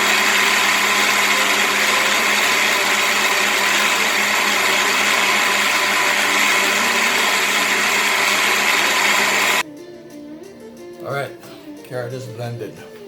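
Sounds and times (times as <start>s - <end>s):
electric blender running: 0.0s - 9.6s.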